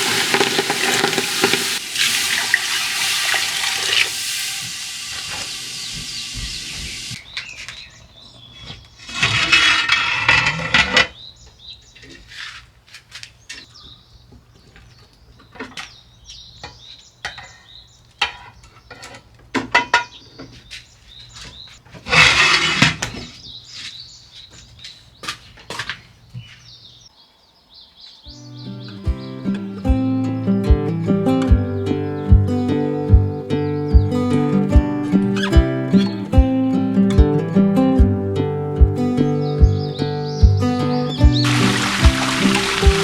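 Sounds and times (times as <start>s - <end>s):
tap water running: 0.0s - 7.2s, 41.2s - 43.0s.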